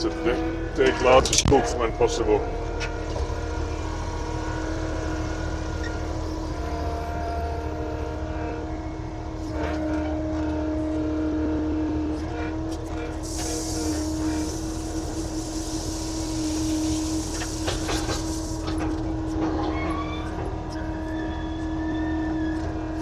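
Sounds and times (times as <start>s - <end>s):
bulldozer engine humming: 0.0s - 23.0s
hiss: 13.2s - 18.8s.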